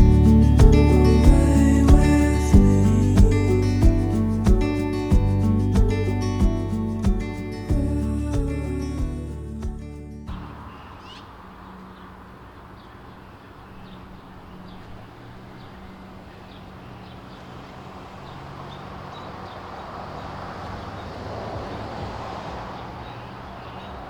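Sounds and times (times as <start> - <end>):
low hum: 0.0 - 10.6.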